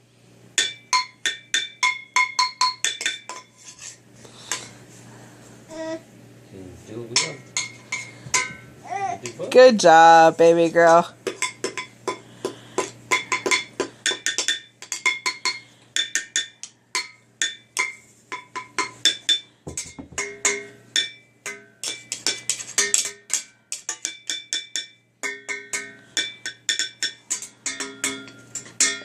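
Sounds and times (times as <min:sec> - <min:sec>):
child banging metal pots: 0:00.6 - 0:03.5, 0:07.1 - 0:09.4, 0:11.2 - 0:29.0.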